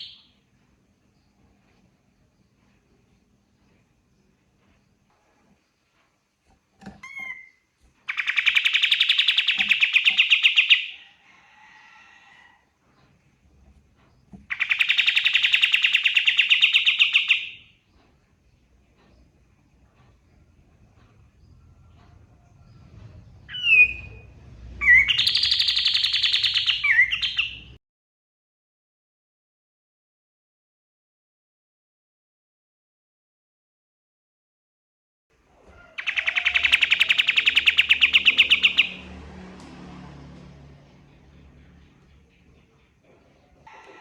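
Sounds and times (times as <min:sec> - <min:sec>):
bird chirping and trilling: 0:00.0 - 0:00.3, 0:07.0 - 0:11.0, 0:14.5 - 0:17.7, 0:23.5 - 0:24.2, 0:24.8 - 0:27.8, 0:36.0 - 0:39.0.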